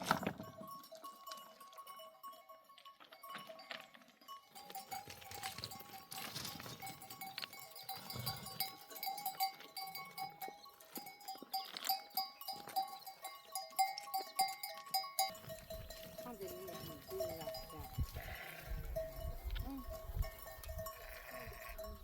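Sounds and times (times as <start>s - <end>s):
animal bells clinking: 0.0s - 22.0s.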